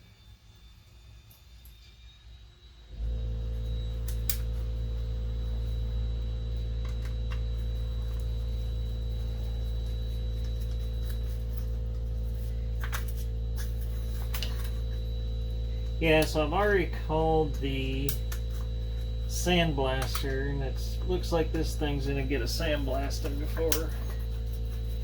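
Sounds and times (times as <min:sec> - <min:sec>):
electrical mains hum: 0:02.8 - 0:25.0.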